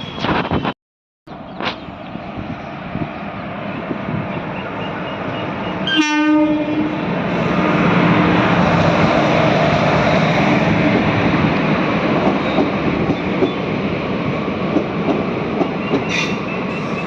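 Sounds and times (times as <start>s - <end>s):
moving train rumble: 1.3s - 17.0s
train horn blast: 4.9s - 8.4s.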